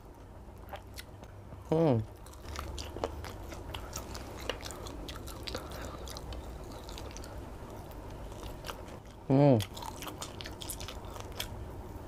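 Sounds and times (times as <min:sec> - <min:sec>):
close-up chewing: 0:02.1 - 0:11.6.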